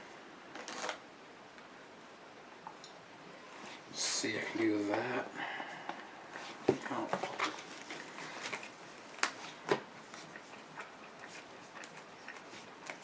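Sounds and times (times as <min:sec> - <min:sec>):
cards rustling: 0:06.3 - 0:10.4.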